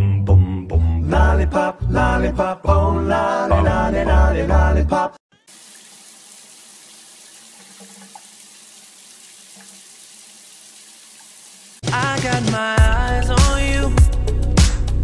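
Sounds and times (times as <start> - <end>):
running water hiss: 5.4 - 11.9.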